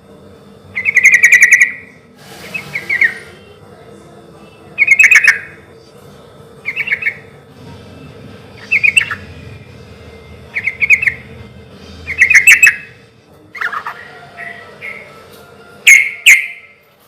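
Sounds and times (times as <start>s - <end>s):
bird chirping song: 0.7s - 1.8s, 4.8s - 5.6s, 6.6s - 7.3s, 8.6s - 9.4s, 10.5s - 11.4s, 12.0s - 13.0s, 13.6s - 15.3s, 15.9s - 16.8s.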